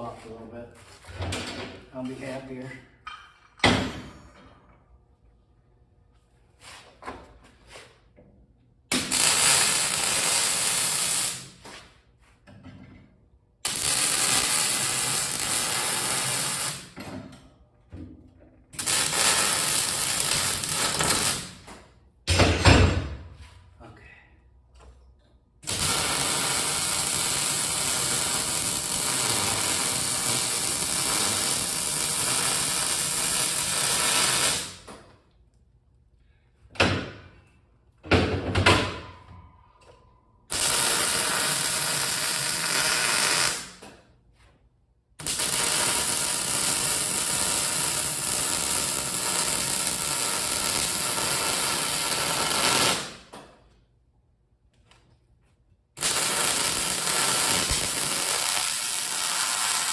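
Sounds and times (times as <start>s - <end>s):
welding arc crackling: 8.9s - 11.6s, 13.6s - 17.0s, 18.8s - 21.7s, 25.6s - 34.8s, 40.5s - 43.8s, 45.2s - 53.2s, 56.0s - 59.9s.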